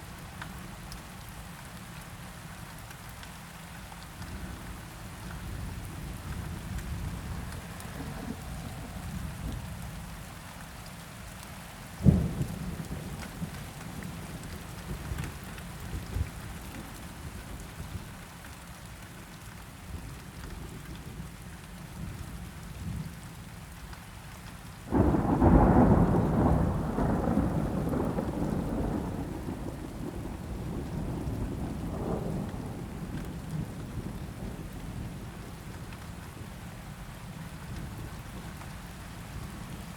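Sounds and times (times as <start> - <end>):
steady rain: 0.0 - 39.9
low rumbling thunder: 5.5 - 9.8, 12.0 - 16.4, 24.9 - 35.8
loud rolling thunderclap: 24.9 - 34.2.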